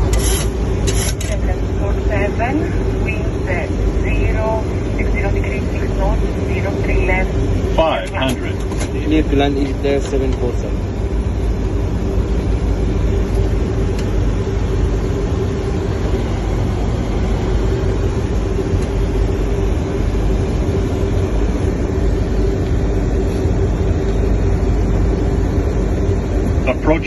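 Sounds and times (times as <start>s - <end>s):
airflow noise: 0.0s - 27.0s
jet engine noise: 0.0s - 27.0s
steady humming tone: 0.0s - 27.0s.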